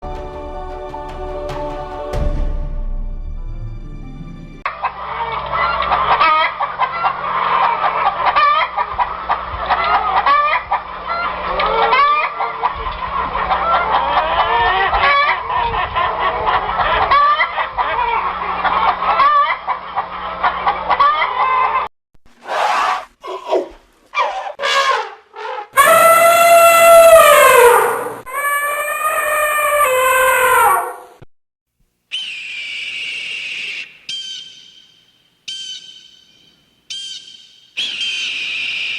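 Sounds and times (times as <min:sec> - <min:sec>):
chickens clucking: 0:04.7 - 0:21.9
loud chicken calls: 0:04.7 - 0:21.9, 0:22.5 - 0:31.2, 0:32.1 - 0:34.8, 0:36.9 - 0:38.9.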